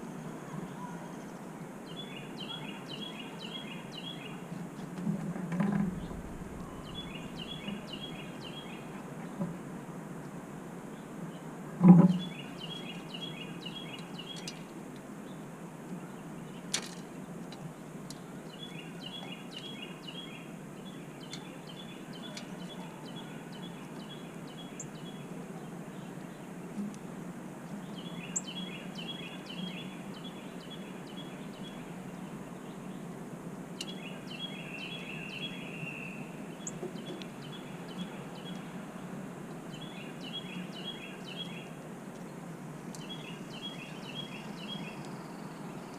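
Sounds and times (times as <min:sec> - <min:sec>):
low background rumble: 0:05.4 - 0:09.8
songbird singing high notes: 0:05.9 - 0:08.9.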